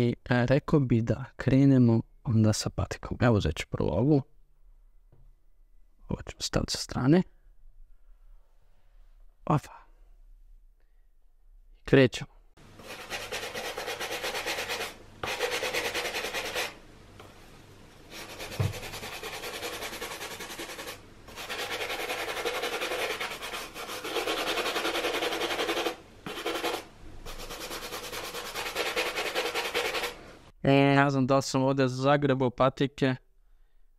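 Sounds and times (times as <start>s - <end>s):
brush scrubbing wet leather shoe: 12.8s - 16.8s, 18.1s - 30.2s.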